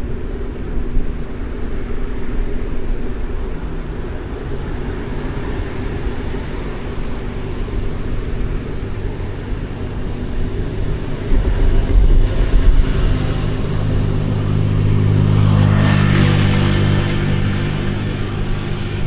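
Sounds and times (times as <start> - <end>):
street traffic rumble: 0.0 - 19.0
vehicle passing close: 3.8 - 19.0.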